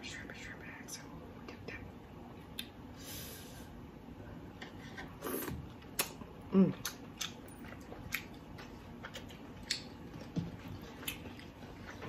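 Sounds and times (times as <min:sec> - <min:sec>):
wet mouth smacks chewing: 0:06.8 - 0:11.9.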